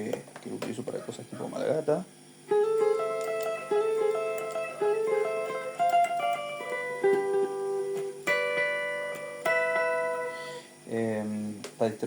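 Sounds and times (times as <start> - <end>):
electric guitar with delay: 2.5 - 10.7.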